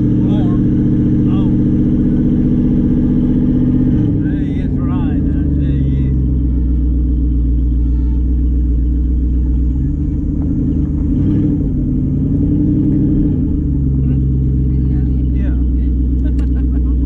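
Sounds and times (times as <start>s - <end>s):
car engine rumble from cabin: 0.0s - 17.0s.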